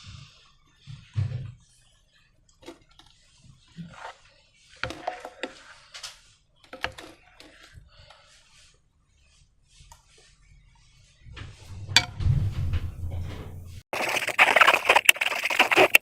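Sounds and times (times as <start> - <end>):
hands squishing slime: 14.0 - 16.0.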